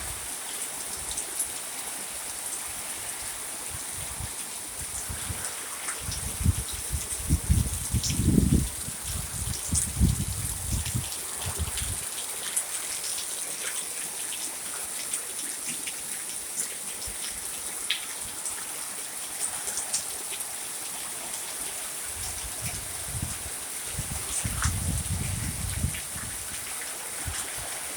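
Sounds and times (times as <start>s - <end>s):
rain hissing: 0.0s - 27.9s
wind gusts on microphone: 3.7s - 12.1s, 22.1s - 27.9s.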